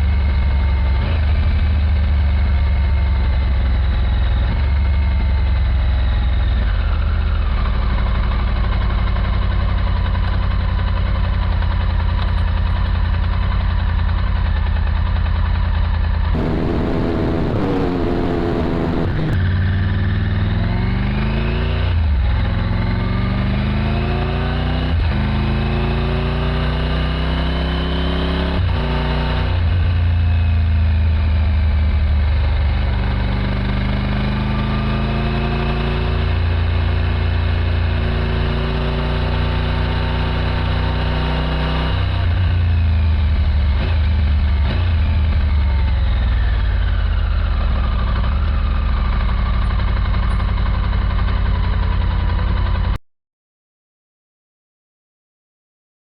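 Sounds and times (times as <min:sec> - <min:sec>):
motorcycle engine revving through gears: 0:16.4 - 0:52.8.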